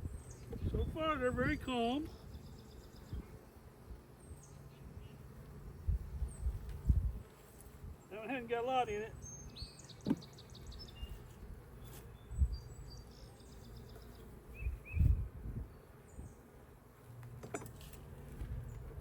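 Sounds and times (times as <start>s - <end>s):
bees humming: 0.0s - 19.0s
bird chirps: 9.2s - 11.2s.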